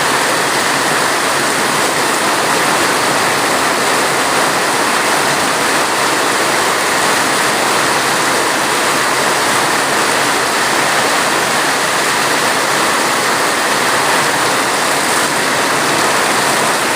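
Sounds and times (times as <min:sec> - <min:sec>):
heavy rain: 0:00.0 - 0:16.9.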